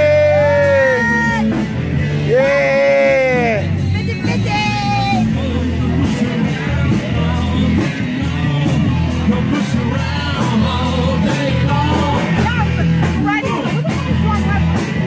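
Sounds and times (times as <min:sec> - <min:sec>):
rock music: 0:00.0 - 0:15.0
person singing: 0:02.2 - 0:14.1.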